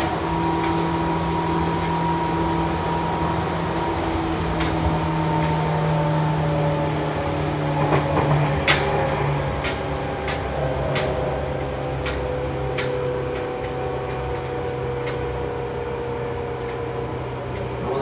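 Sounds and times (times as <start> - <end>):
electric train motor hum: 0.0 - 18.0.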